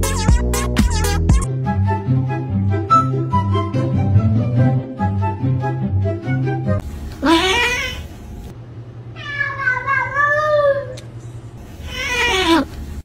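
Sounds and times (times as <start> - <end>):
cats meowing: 7.2 - 8.1, 9.2 - 11.0, 11.7 - 12.8.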